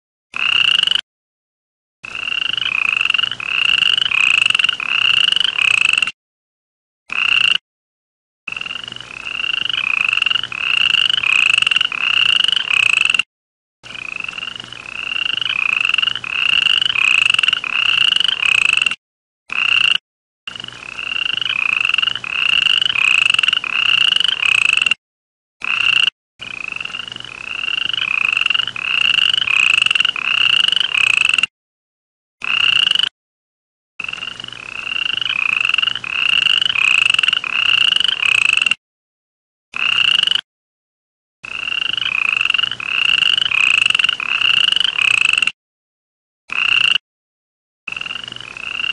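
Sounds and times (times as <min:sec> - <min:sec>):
frog calling: 0:00.4 - 0:01.0, 0:02.1 - 0:06.1, 0:07.1 - 0:07.6, 0:08.5 - 0:13.2, 0:13.9 - 0:20.0, 0:20.9 - 0:24.9, 0:25.6 - 0:31.4, 0:32.4 - 0:33.1, 0:34.0 - 0:38.8, 0:39.8 - 0:40.4, 0:41.5 - 0:45.5, 0:46.5 - 0:47.0, 0:47.9 - 0:48.9.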